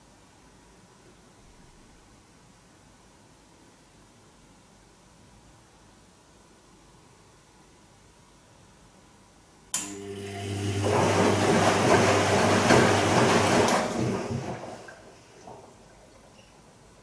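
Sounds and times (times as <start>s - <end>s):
washing machine click: 9.8s - 16.1s
washing machine motor hum: 9.8s - 17.0s.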